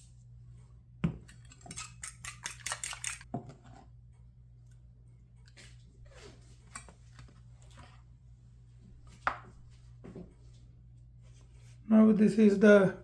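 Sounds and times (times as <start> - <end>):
cutlery clinking against bowl: 1.2 - 3.3, 6.7 - 7.0
cutlery scraping bowl: 1.2 - 3.8, 5.5 - 8.0.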